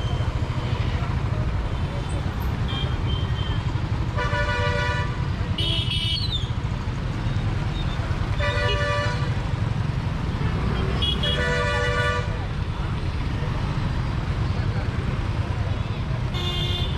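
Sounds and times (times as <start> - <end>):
vehicle horns honking: 4.2 - 6.3, 8.4 - 9.4, 10.7 - 12.4, 16.3 - 16.9.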